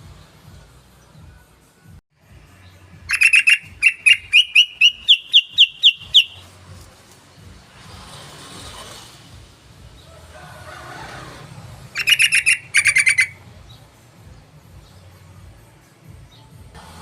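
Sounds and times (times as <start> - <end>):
bird singing sharp notes: 3.1 - 6.4, 12.0 - 13.4.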